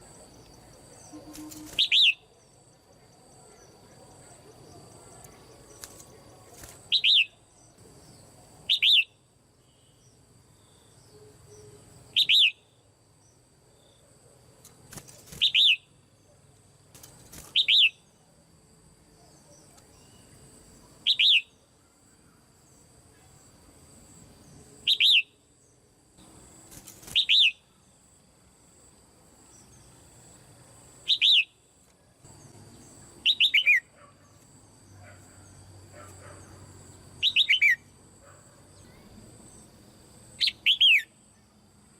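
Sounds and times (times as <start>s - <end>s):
bird chirping: 0.1s - 13.4s, 17.4s - 18.1s, 19.2s - 21.6s, 24.4s - 25.4s, 31.0s - 31.6s, 32.3s - 34.1s, 34.8s - 37.9s, 40.4s - 41.1s.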